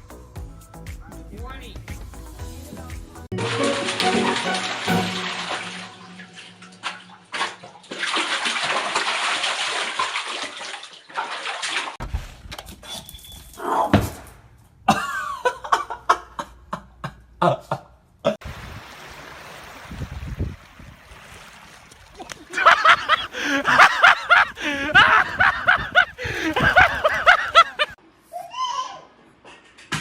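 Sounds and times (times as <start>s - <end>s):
sharp knocks and splashes: 3.3s - 12.5s, 18.4s - 28.0s
water running from tap: 3.4s - 6.6s.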